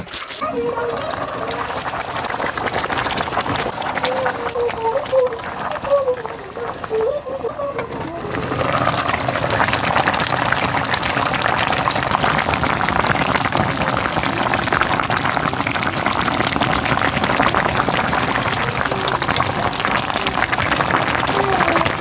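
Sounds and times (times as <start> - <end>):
sauce bubbling in a pot: 0.0 - 22.0.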